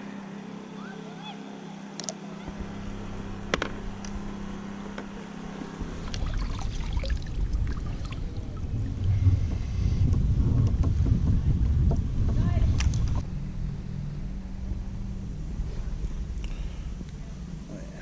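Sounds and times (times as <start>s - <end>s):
low rumble: 2.4s - 18.0s
water splashing around a kayak: 5.8s - 9.7s.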